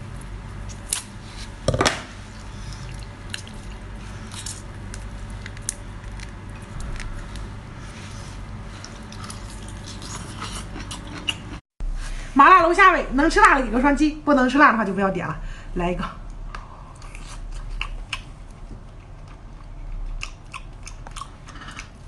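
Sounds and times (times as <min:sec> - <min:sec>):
steady low hum: 0:00.0 - 0:22.0
wet chewing sounds: 0:02.3 - 0:11.6, 0:16.2 - 0:22.0.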